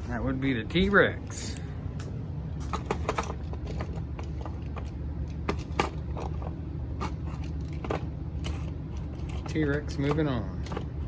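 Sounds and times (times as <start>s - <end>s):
toy trucks clicking and clattering: 2.6s - 11.0s.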